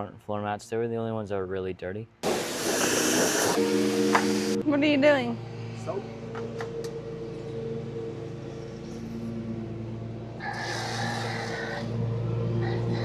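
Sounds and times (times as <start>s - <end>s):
bursts of hissing: 2.2s - 4.6s
motor humming: 2.2s - 4.6s.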